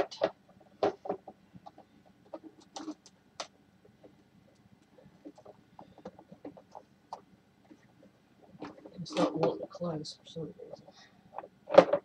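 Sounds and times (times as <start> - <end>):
plastic parts clicking and knocking: 0.0 - 4.6, 5.2 - 7.8, 11.3 - 12.0.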